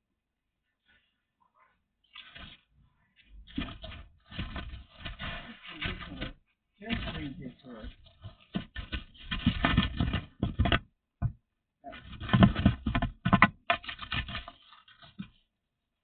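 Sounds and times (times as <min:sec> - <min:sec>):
clicks taps and rustling: 0:03.2 - 0:15.4.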